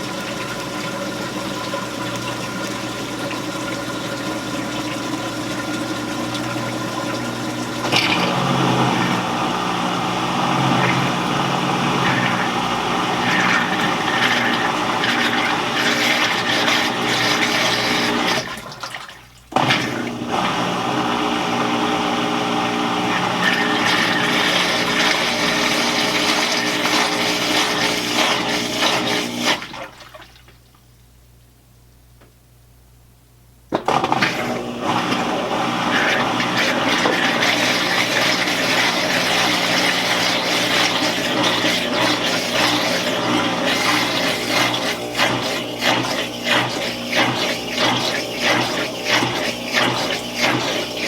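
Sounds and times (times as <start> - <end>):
washing machine motor hum: 0.0 - 30.8, 33.7 - 51.0
water rushing and gurgling: 5.0 - 15.8.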